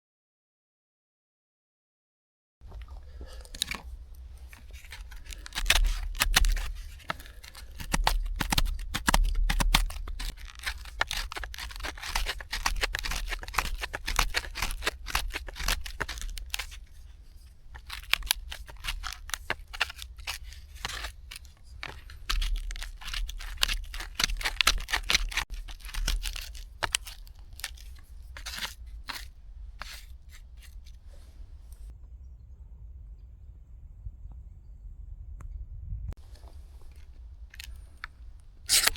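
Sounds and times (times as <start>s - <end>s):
bark tearing and crinkling: 2.7s - 31.9s, 36.2s - 38.9s
ferro rod rasping scrapes: 2.8s - 31.9s, 38.7s - 38.9s.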